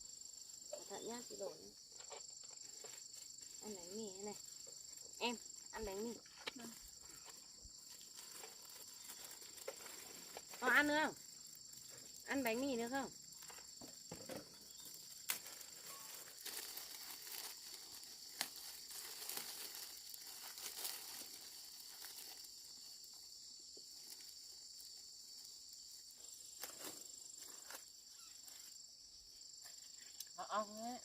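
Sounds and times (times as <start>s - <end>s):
insects chirring: 0.0s - 31.0s
rustling and crackling from handling: 6.2s - 12.7s, 13.3s - 23.2s.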